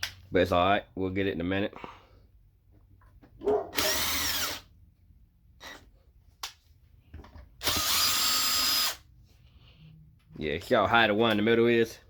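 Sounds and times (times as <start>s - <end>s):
power drill motor whine: 3.8s - 4.7s, 7.6s - 9.0s.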